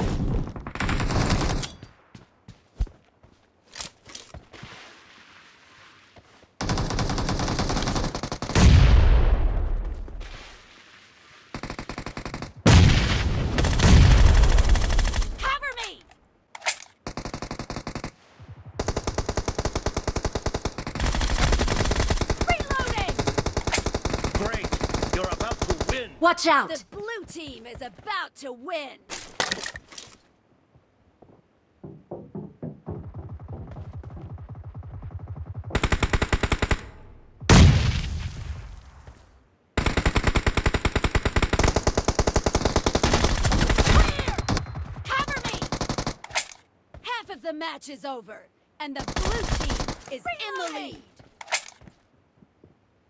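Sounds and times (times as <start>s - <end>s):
video game automatic gunfire: 18.8s - 26.0s.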